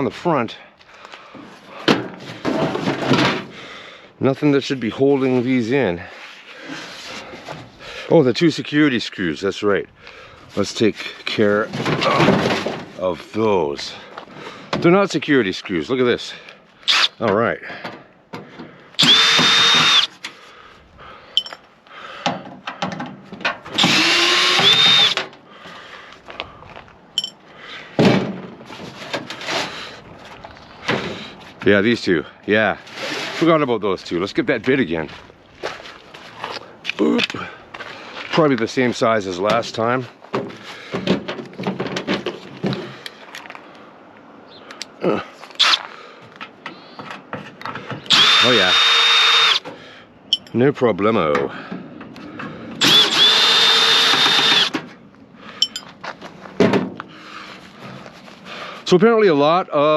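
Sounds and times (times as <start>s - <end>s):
power drill running: 19.0s - 20.1s, 23.8s - 25.2s, 48.1s - 49.6s, 52.8s - 54.7s
metal tool parts clicking: 21.4s - 21.6s.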